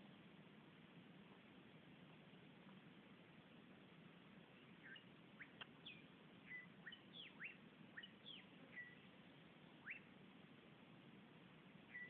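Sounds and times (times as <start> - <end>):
steady low hiss: 0.0 - 12.0
birds chirping: 4.4 - 10.2, 11.7 - 12.0.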